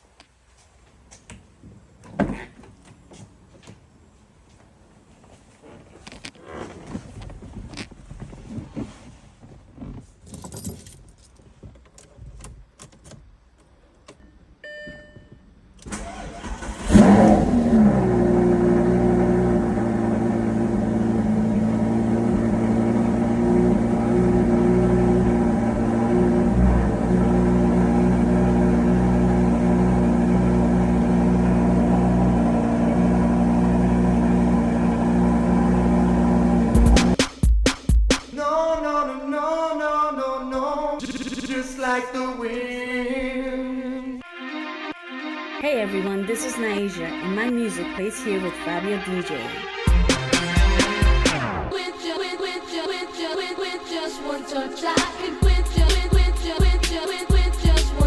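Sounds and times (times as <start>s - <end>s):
car engine starting and idling: 15.7s - 37.2s, 49.9s - 58.0s.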